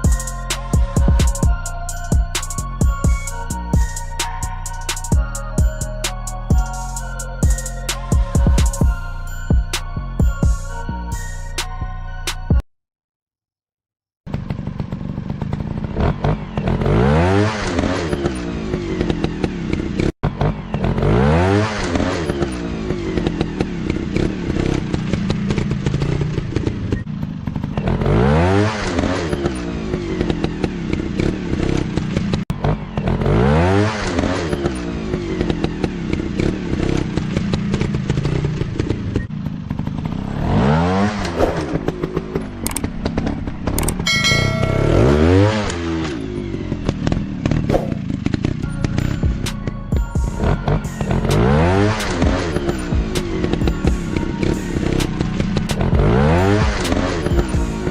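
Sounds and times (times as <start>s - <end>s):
motorcycle engines revving: 14.3s - 57.9s.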